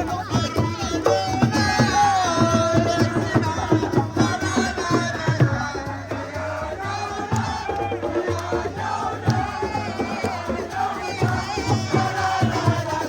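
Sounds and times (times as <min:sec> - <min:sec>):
hand drums in quick beat: 0:00.0 - 0:13.0
people singing: 0:00.0 - 0:13.0.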